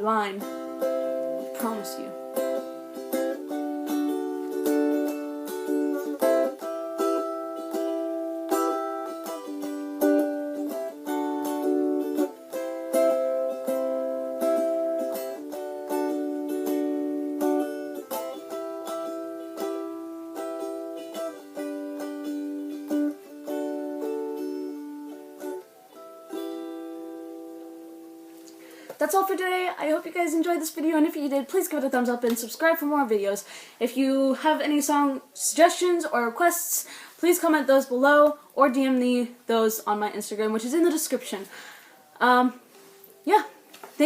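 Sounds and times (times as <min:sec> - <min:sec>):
acoustic strings strummed chords: 0:00.0 - 0:31.0.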